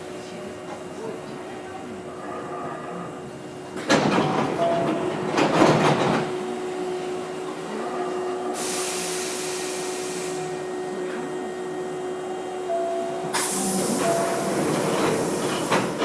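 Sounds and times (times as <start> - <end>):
train equipment hum: 0.0 - 16.0
compressed air hiss: 8.6 - 10.4, 13.4 - 14.0.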